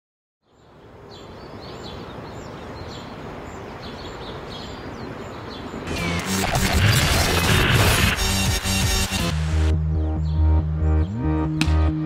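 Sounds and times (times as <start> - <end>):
small birds chirping: 0.4 - 7.1, 9.9 - 11.3.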